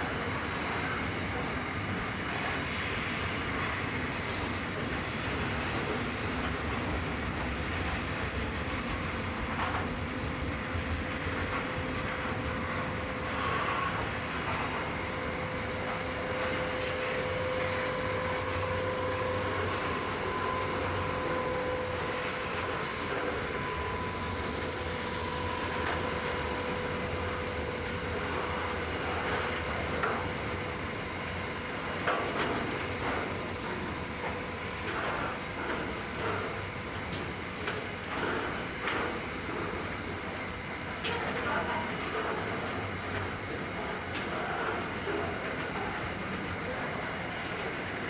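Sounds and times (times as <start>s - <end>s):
freight train wheels clicking on rails: 0.0s - 48.0s
thin steady whine: 10.4s - 48.0s.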